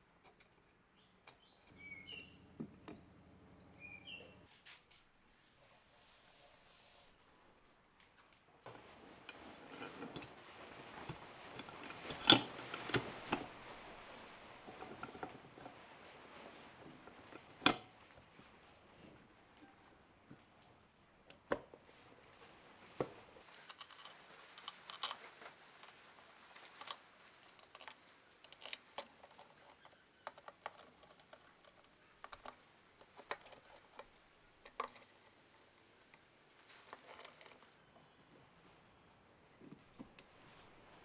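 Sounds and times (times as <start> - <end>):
metal parts and tools clicking: 23.4 - 26.0, 26.6 - 35.4, 36.7 - 37.7.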